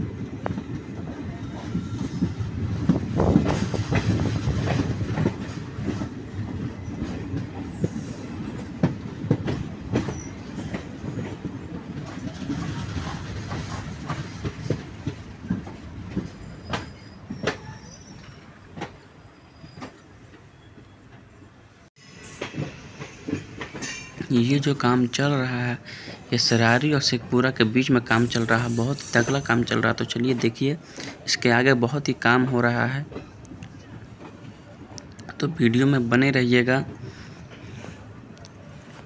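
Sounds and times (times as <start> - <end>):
train low rumble: 0.0 - 39.0
wheels clacking over rail joints: 0.3 - 19.0.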